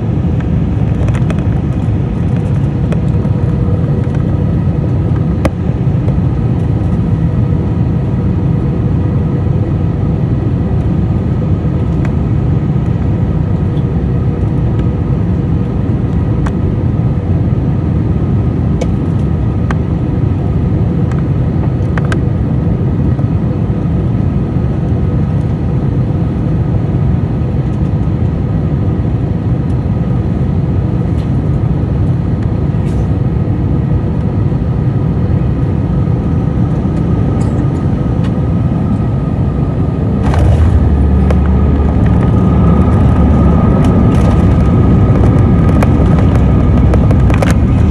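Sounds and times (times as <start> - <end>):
airliner cabin rumble: 0.0 - 47.9
faint engine tones: 37.4 - 47.9.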